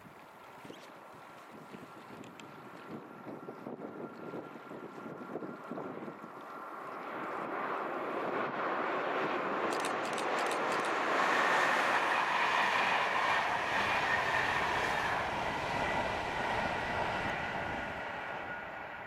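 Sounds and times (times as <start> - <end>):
passenger train passing: 7.6 - 19.0.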